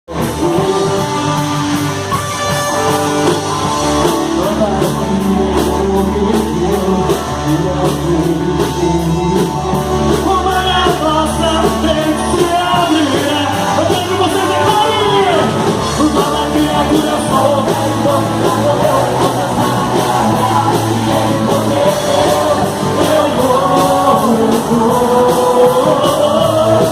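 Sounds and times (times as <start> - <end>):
guitar: 0.0 - 26.9
person singing: 0.1 - 26.9
drum beat: 8.8 - 26.9.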